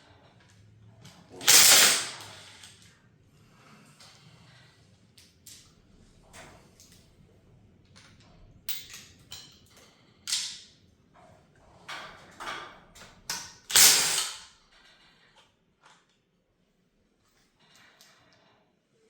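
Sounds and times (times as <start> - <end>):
metal tools clanking and scraping: 8.2 - 10.6.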